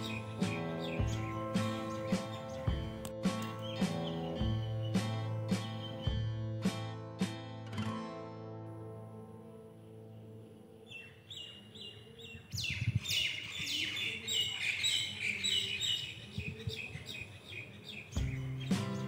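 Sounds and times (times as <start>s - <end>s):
birds chirping: 0.0s - 6.4s, 10.0s - 19.0s
guitar music: 0.0s - 10.7s, 18.2s - 19.0s.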